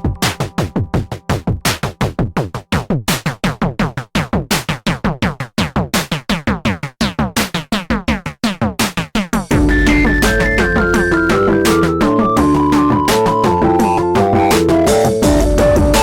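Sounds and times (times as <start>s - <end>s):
electronic drum-machine hits: 0.0s - 3.2s, 8.8s - 16.0s.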